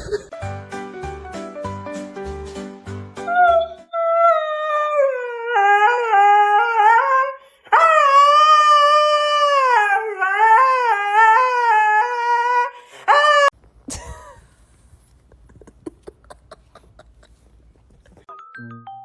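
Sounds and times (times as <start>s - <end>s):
dog howling: 3.3s - 13.5s.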